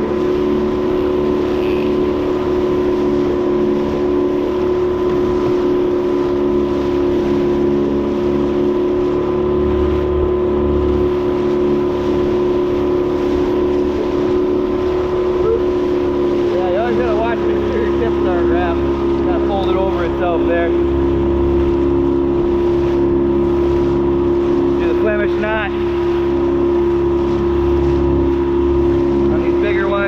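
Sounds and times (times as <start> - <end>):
boat motor droning: 0.0 - 30.0.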